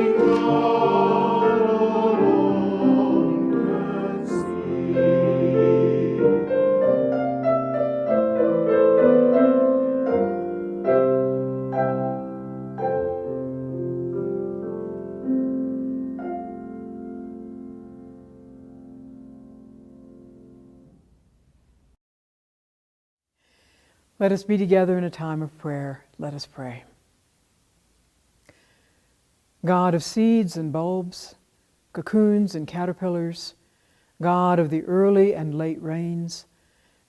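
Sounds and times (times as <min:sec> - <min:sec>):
person singing: 0:00.0 - 0:06.9
piano playing: 0:00.0 - 0:21.1.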